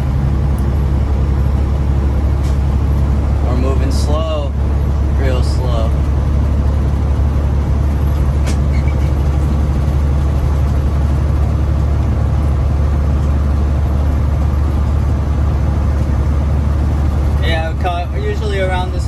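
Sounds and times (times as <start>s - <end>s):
diesel truck engine drone: 0.0s - 19.0s.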